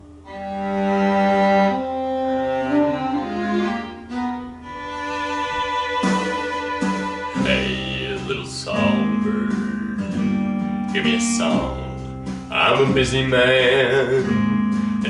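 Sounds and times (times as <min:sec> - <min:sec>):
bowed strings melody: 0:00.0 - 0:15.0
sharp plucked chord: 0:05.2 - 0:15.0.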